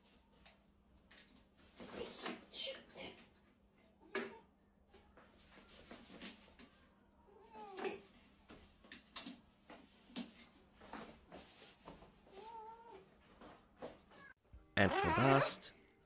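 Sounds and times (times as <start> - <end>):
cat meowing: 14.8 - 15.7.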